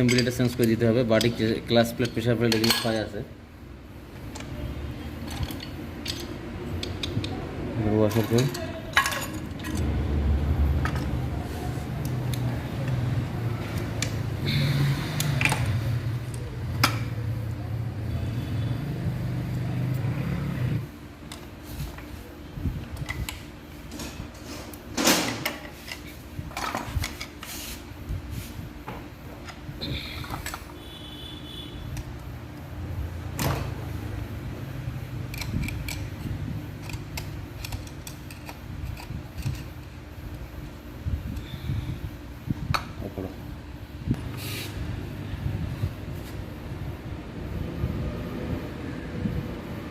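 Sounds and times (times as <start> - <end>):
metal tools clinking: 0.0 - 3.2, 8.0 - 9.9
low machine hum: 0.0 - 49.9.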